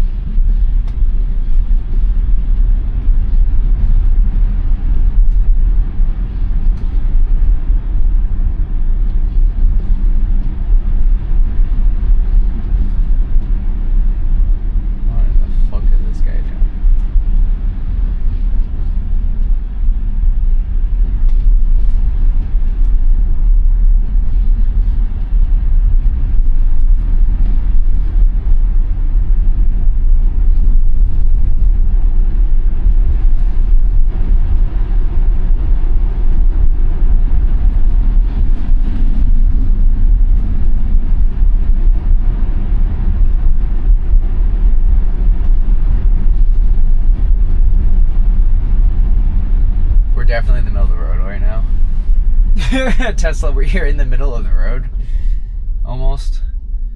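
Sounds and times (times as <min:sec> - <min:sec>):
tyres rumbling on snowy road: 0:00.0 - 0:56.3.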